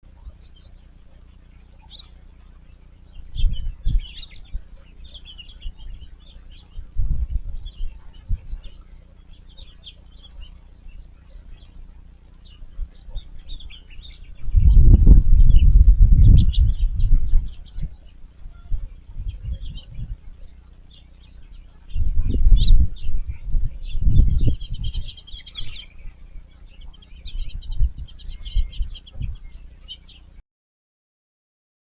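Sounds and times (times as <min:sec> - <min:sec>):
low rumbles: 0:00.0 - 0:30.0
bird singing warbled phrases: 0:00.0 - 0:30.4.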